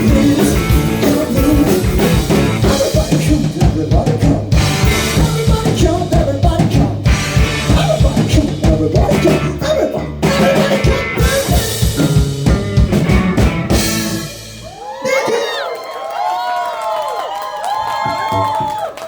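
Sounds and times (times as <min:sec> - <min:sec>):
live rock band playing: 0:00.0 - 0:14.9.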